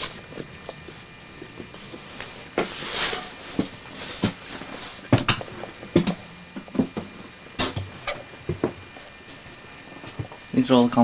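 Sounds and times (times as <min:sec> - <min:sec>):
footsteps and knocks thumping: 0:03.5 - 0:10.4.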